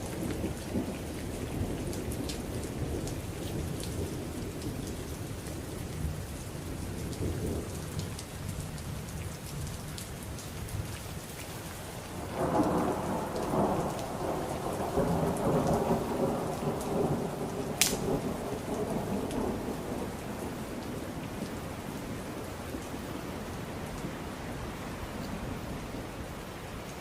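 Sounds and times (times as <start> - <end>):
heavy rain: 0.0 - 27.0
thunder rumbling: 12.2 - 26.1
sharp click: 17.8 - 18.0.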